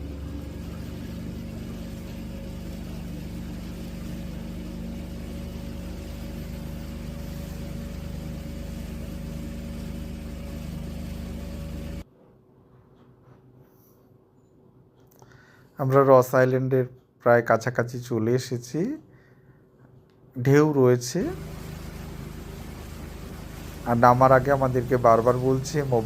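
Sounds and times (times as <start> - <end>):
motorboat engine running: 0.0 - 12.0, 21.0 - 26.0.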